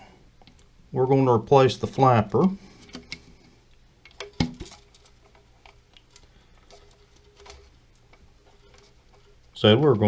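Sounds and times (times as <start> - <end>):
hands handling plastic parts: 1.8 - 10.0.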